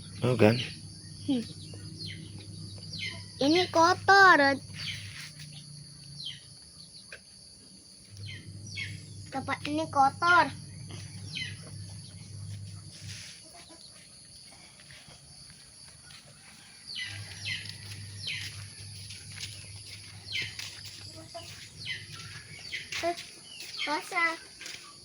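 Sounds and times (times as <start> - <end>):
low hum: 0.0 - 6.8, 8.1 - 13.4
chick peeping: 1.2 - 4.0, 11.0 - 12.1, 20.3 - 24.8.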